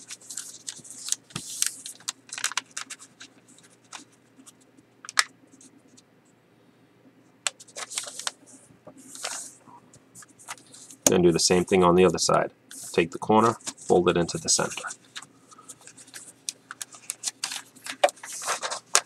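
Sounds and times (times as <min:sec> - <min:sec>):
sharp paper crackle: 0:00.0 - 0:04.1, 0:07.6 - 0:08.4, 0:14.6 - 0:19.0
paper being folded: 0:00.0 - 0:04.5, 0:07.6 - 0:08.4, 0:09.1 - 0:09.6, 0:12.7 - 0:19.0.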